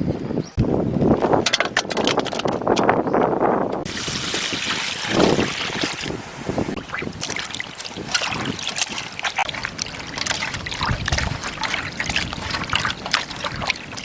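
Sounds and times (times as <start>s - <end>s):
water splashing and trickling: 3.8s - 14.0s.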